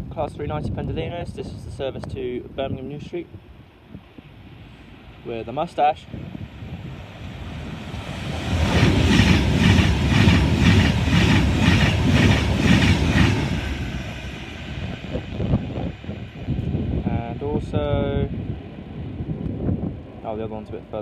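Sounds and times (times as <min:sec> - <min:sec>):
train wheels rushing on rail: 0:05.6 - 0:20.2
clickety-clack over rail joints: 0:08.3 - 0:14.1.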